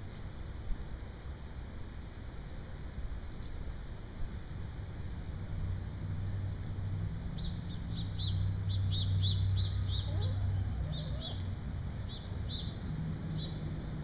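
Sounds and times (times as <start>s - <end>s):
steady low hum: 0.0s - 14.0s
bird chirping: 3.1s - 3.6s, 7.3s - 13.9s
soft low bird calls: 7.3s - 13.9s.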